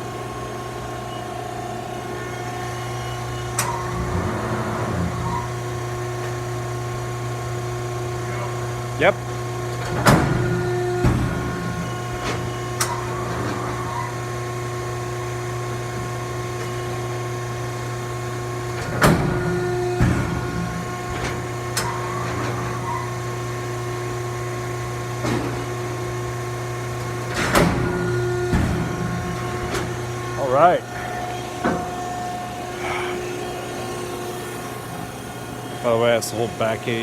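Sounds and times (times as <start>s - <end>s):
machine drive humming: 0.0s - 37.0s
machine clunks and clicks: 3.5s - 4.2s, 27.0s - 30.0s.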